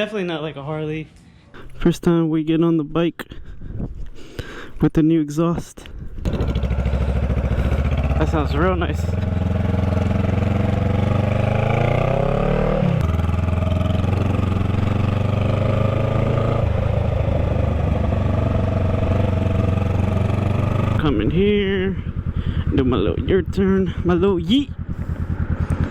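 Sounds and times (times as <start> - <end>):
motorcycle engine revving: 6.2 - 25.9.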